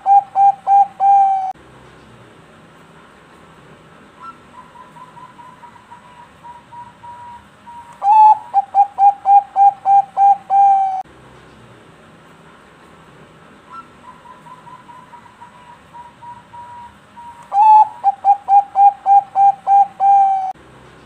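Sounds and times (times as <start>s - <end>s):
dove cooing: 0.0s - 1.6s, 4.2s - 11.0s, 13.7s - 20.6s.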